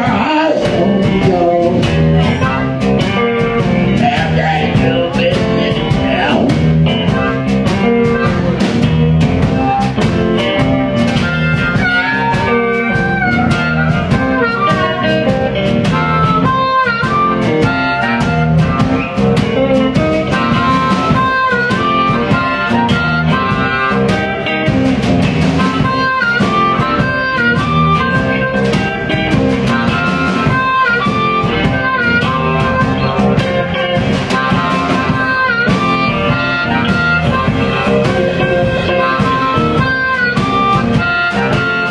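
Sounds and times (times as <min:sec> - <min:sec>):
blues band instrumental: 0:00.0 - 0:41.9.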